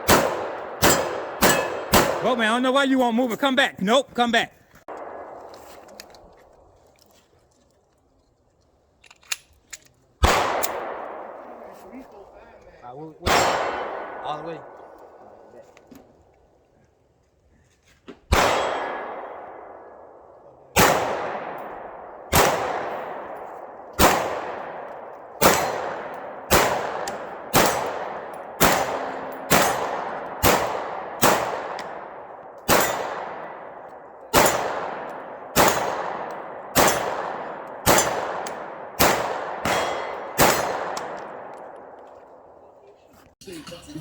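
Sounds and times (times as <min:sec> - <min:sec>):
gunshots echoing: 0:00.0 - 0:03.7, 0:04.9 - 0:06.4, 0:10.2 - 0:12.3, 0:13.2 - 0:15.6, 0:18.3 - 0:42.6.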